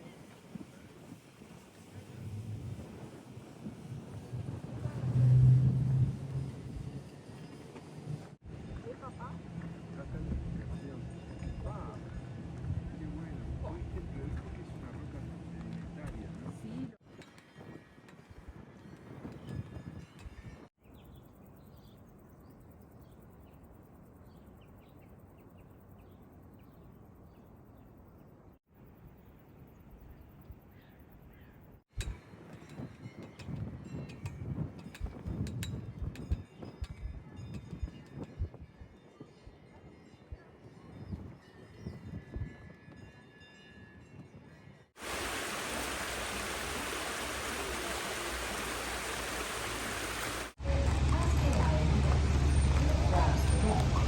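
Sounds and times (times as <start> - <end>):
faint wind: 0.0 - 54.0
small birds chirping: 20.8 - 28.2
rushing water: 45.0 - 54.0.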